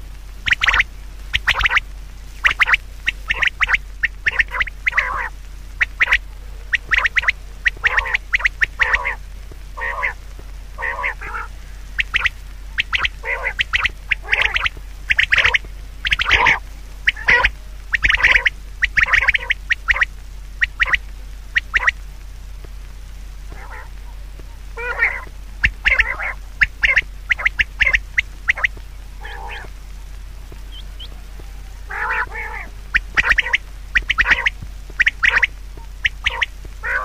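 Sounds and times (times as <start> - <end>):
steady low hum: 0.0 - 37.0
animal harsh calls: 2.4 - 9.2, 9.8 - 10.2, 10.8 - 21.0, 23.5 - 24.0, 24.8 - 29.7, 30.7 - 37.0.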